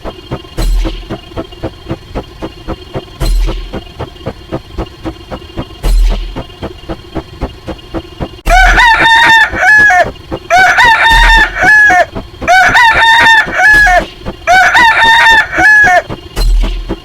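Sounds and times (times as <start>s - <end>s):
faint ticking beat: 0.0s - 17.0s
rooster crowing: 8.5s - 16.1s.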